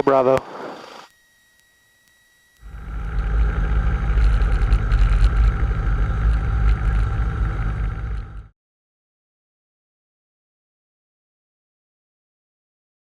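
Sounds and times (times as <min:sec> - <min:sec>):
airplane engine and propeller rumble: 0:02.6 - 0:08.5.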